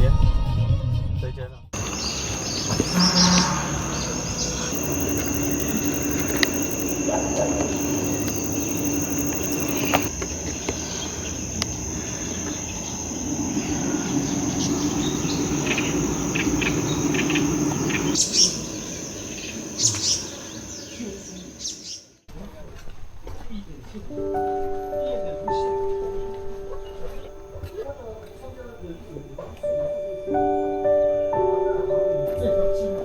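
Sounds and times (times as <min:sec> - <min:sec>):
bird chirps: 0:01.8 - 0:22.2
insects droning: 0:01.8 - 0:22.2, 0:26.8 - 0:33.0.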